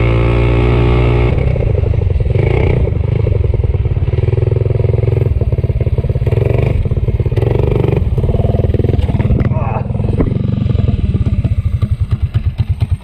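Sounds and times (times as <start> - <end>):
minibike engine at low revs: 0.0 - 13.0.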